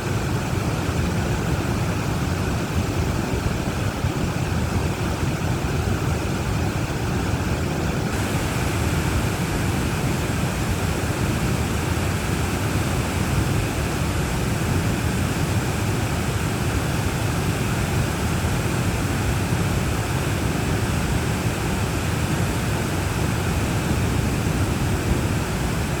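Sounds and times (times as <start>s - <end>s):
waterfall rushing: 8.1s - 26.0s.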